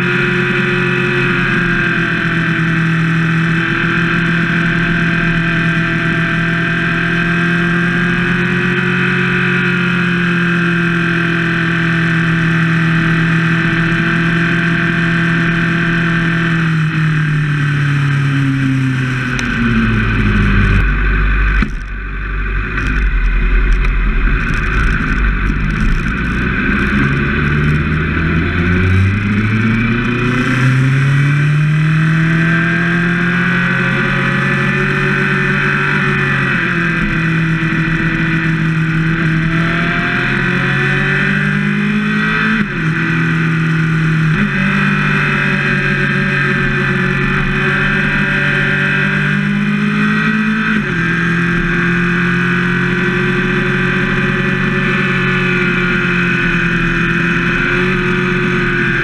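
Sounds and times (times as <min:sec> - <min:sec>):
motorcycle engine: 0:00.0 - 0:59.0
wind rumble on microphone: 0:16.7 - 0:45.3.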